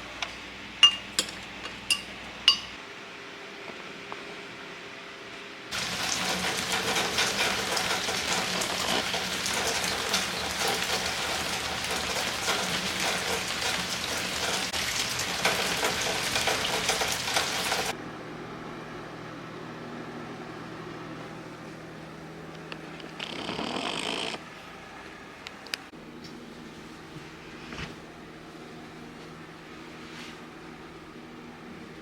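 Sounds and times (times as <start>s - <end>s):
rain drops hitting a surface: 5.7s - 17.9s.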